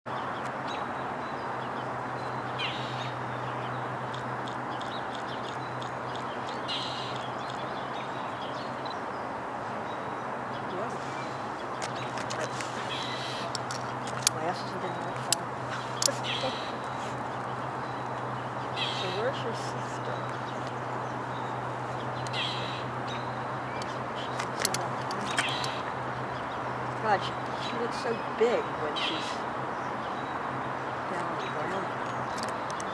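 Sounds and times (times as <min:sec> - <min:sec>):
background rush and low hum: 0:00.6 - 0:32.9
bird harsh rasping calls: 0:10.8 - 0:29.5
bird harsh call: 0:10.9 - 0:13.6, 0:15.7 - 0:18.0, 0:18.7 - 0:20.4, 0:22.2 - 0:24.4
sharp clicks: 0:23.8 - 0:25.9.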